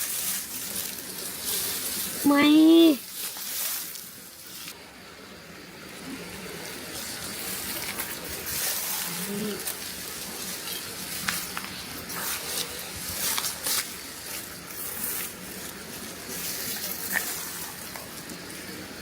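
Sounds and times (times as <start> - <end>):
dry rice stalks rustling: 0.0 - 4.8, 6.0 - 19.0.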